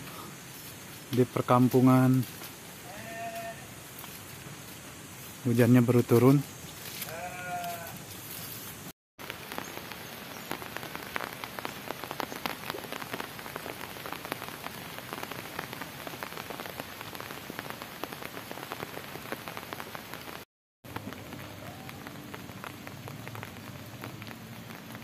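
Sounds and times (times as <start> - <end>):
rain hissing: 0.0 - 25.0
raindrops ticking: 9.2 - 25.0.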